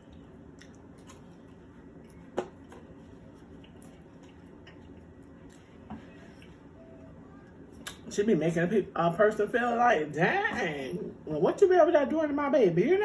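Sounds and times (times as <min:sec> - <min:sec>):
soft chewing: 0:00.0 - 0:08.1.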